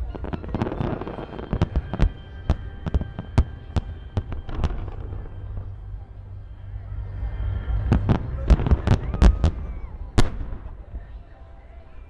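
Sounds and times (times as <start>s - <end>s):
fireworks bangs: 0.0s - 5.8s, 7.5s - 11.2s
fireworks crackle: 0.0s - 10.9s
low rumble: 0.0s - 11.4s.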